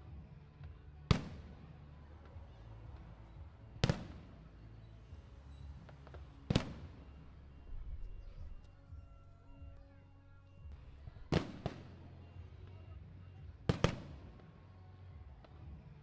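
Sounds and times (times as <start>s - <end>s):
fireworks bangs with echo: 0.1s - 8.6s, 10.7s - 14.7s.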